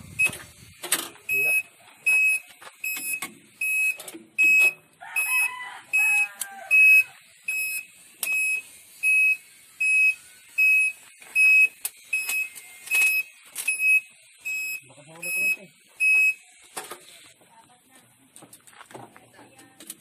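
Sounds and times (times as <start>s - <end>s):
road roller warning buzzer beeping: 1.2s - 16.6s
rooster crowing: 5.0s - 7.2s.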